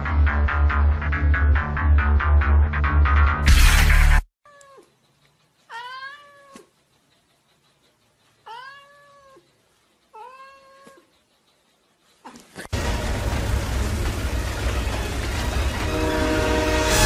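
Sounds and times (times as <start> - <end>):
cat meowing: 4.4 - 4.9, 5.7 - 6.8, 8.4 - 9.5, 10.1 - 11.1.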